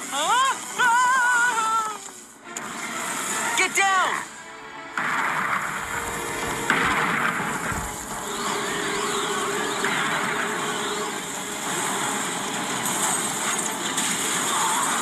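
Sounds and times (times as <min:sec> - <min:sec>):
cartoon tornado wind: 0:05.6 - 0:11.1.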